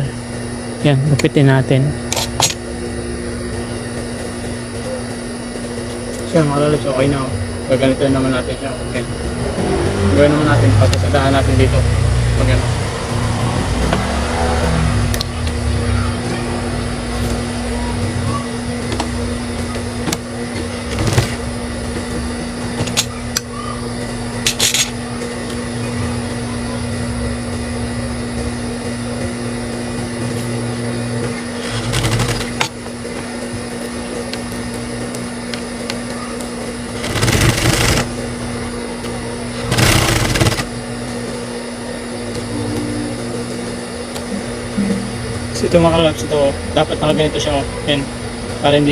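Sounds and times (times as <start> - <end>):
sewing machine motor hum: 0.0 - 48.9
sewing machine stitching: 31.6 - 32.7, 37.0 - 38.2, 39.6 - 40.7.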